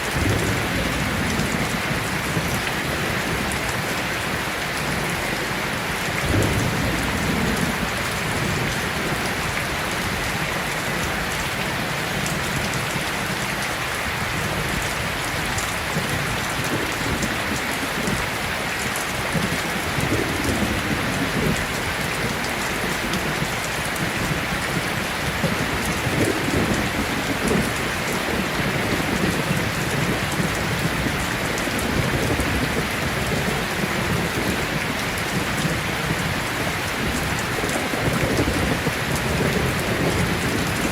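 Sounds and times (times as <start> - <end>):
distant thunder rolling: 0.0 - 3.8, 6.2 - 10.2
heavy rain pouring: 0.0 - 40.9.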